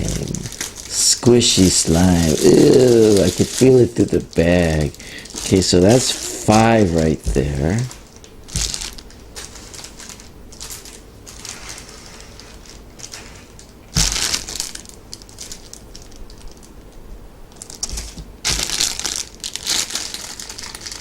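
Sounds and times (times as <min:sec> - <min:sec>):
plastic bags rustling: 0:00.0 - 0:16.9, 0:17.5 - 0:21.0.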